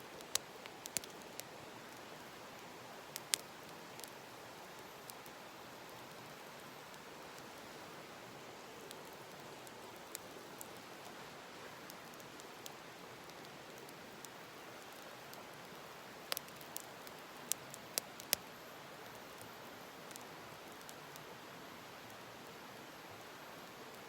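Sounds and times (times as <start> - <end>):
wood fire crackling: 0.0 - 21.1
steady hiss: 0.0 - 24.0
fire popping: 0.2 - 4.4, 8.6 - 18.4.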